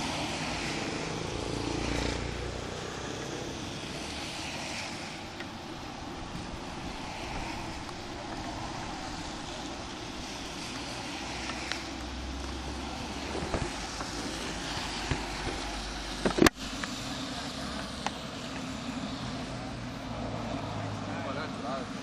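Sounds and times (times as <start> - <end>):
wind rush on microphone: 0.0 - 16.5.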